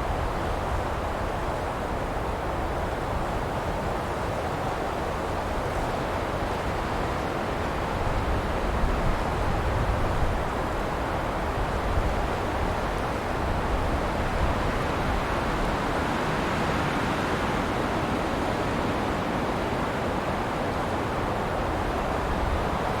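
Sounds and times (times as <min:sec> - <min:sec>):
wind rushing through pine trees: 0:00.0 - 0:23.0.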